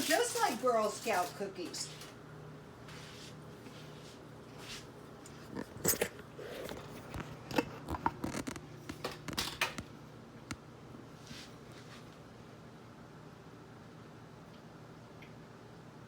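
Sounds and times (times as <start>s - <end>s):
cookies crunching while chewed: 5.2s - 9.4s.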